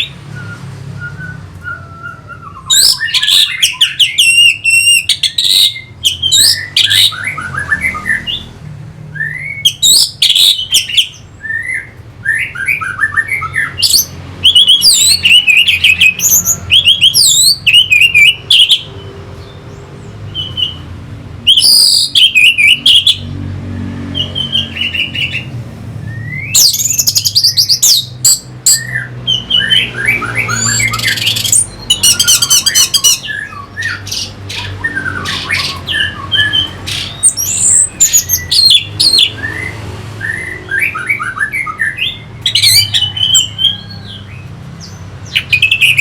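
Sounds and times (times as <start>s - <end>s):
thrush singing: 24.1s - 46.0s.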